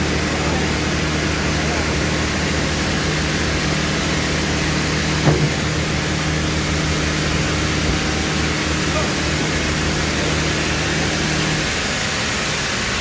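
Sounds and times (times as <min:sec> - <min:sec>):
bandsaw machinery humming: 0:00.0 - 0:12.4
short knock: 0:05.2 - 0:05.8.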